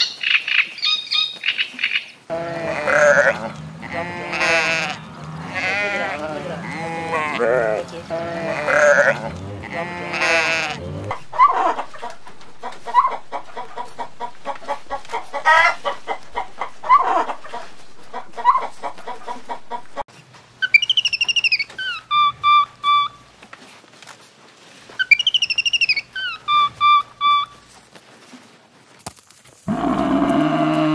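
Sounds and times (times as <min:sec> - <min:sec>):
hens clucking: 0:00.0 - 0:23.3, 0:29.7 - 0:30.9
sheep bleating: 0:02.3 - 0:13.2, 0:29.7 - 0:30.9.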